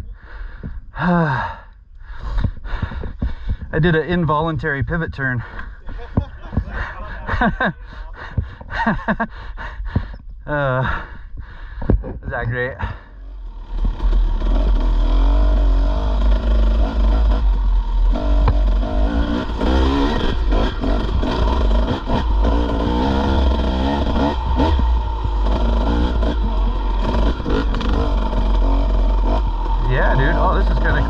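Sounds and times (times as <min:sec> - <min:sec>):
dirt bike engine revving: 0:02.8 - 0:09.2, 0:12.8 - 0:31.0.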